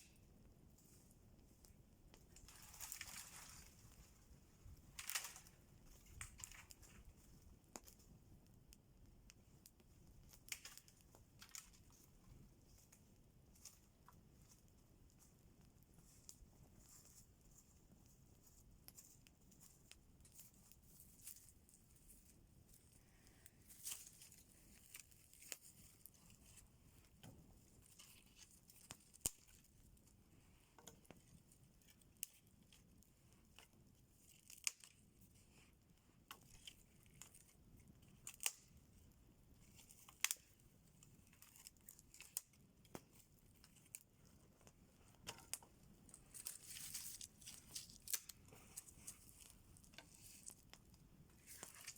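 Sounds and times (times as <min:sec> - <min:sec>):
sharp clicks and crackles: 0:04.9 - 0:07.0, 0:08.7 - 0:12.1, 0:39.7 - 0:51.9.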